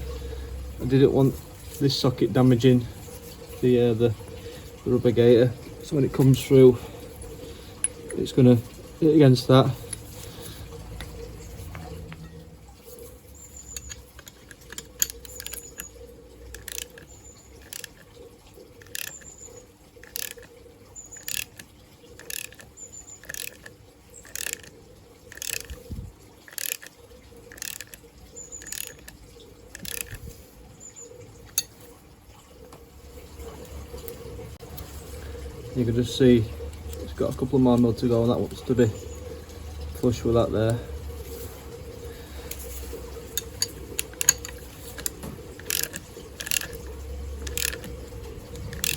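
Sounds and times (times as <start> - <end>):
ratchet wrench clicking: 13.7 - 18.0, 18.8 - 19.3, 20.0 - 20.5, 21.2 - 24.7, 25.3 - 25.8, 26.5 - 26.9, 27.5 - 28.0, 28.6 - 30.2, 43.4 - 48.0, 48.6 - 48.9.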